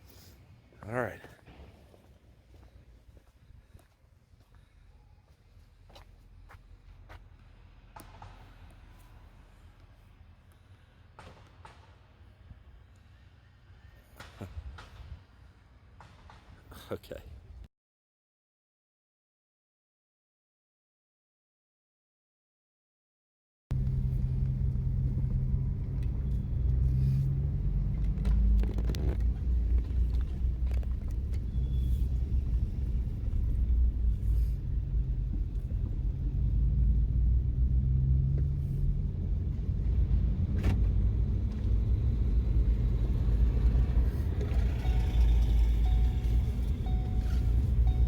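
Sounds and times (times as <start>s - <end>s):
car engine and road rumble: 0.8s - 13.7s, 23.7s - 48.0s.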